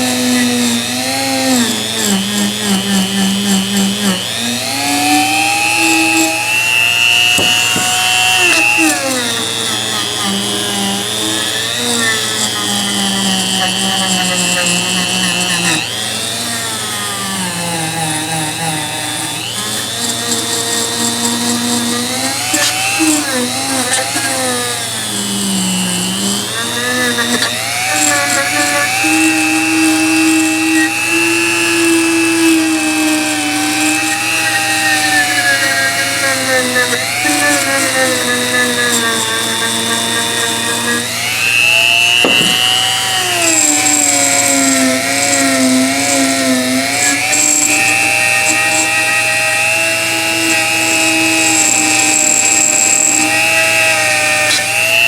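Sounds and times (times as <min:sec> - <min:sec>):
power tool motor whining: 0:00.0 - 0:55.0.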